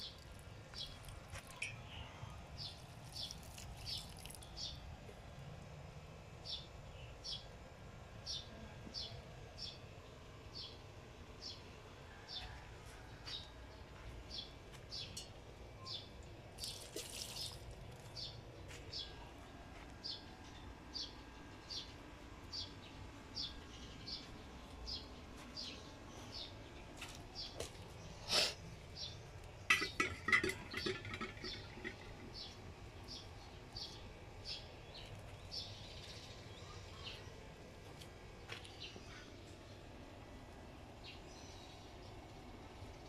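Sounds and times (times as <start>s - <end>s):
small bird chirping: 0.0s - 4.8s.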